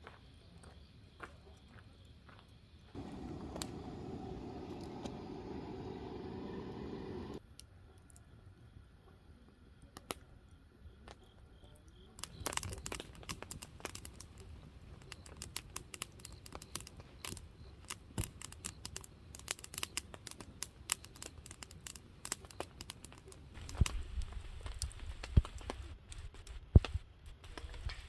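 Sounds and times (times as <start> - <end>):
crackling and clicking: 3.0 - 8.2, 12.2 - 28.0.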